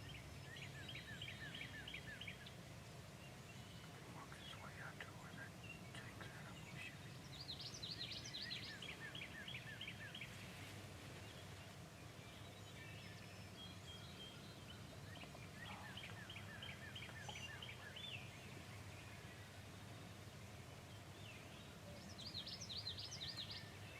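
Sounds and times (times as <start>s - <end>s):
distant turkey gobbling: 15.2s - 18.1s.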